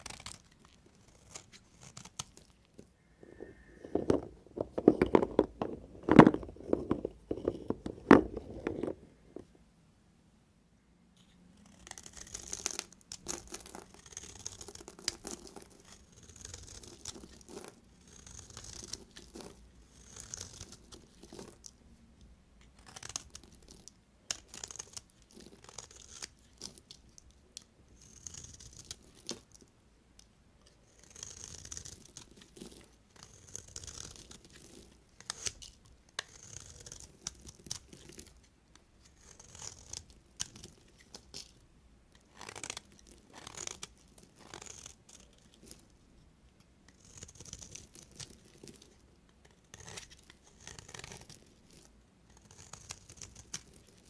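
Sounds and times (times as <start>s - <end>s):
knife slicing through soap: 36.2s - 38.3s, 49.7s - 54.0s.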